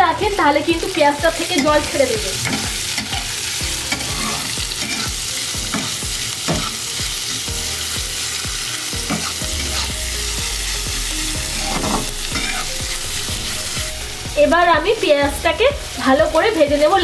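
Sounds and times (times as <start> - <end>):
onions sizzling in oil: 0.0 - 17.0
spatula scraping and stirring: 1.6 - 14.4.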